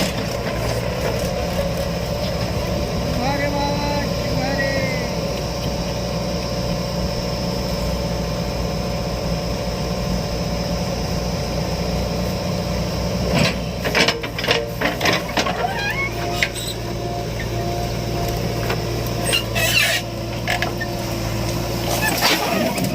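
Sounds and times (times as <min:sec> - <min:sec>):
diesel engine running: 0:00.0 - 0:22.9
knocks and clanks: 0:13.4 - 0:16.6.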